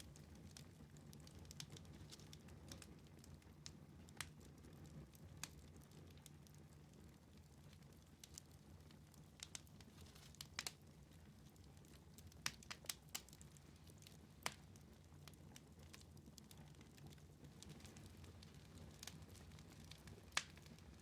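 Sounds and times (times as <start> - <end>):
wood fire crackling: 0.0 - 21.0
sharp pops of fire: 14.4 - 14.7, 19.9 - 20.8.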